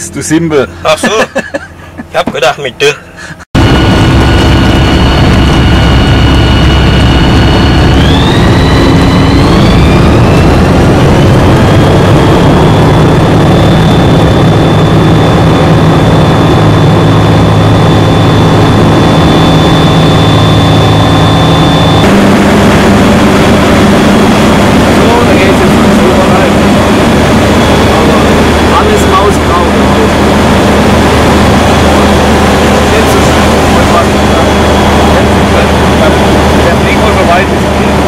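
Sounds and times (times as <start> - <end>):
aircraft engine and propeller: 0.0 - 38.0.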